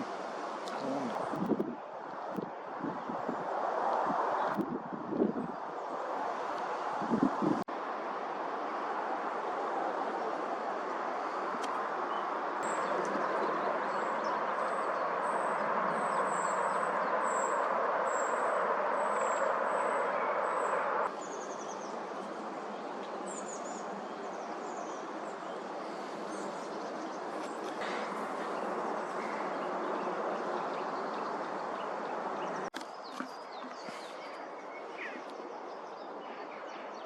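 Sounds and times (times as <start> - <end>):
small birds chirping: 11.2 - 37.0.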